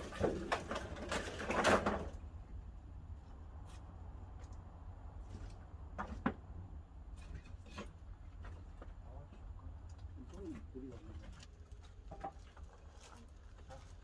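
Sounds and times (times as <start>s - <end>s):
firewood knocking and clattering: 0.0s - 2.2s, 5.3s - 14.0s.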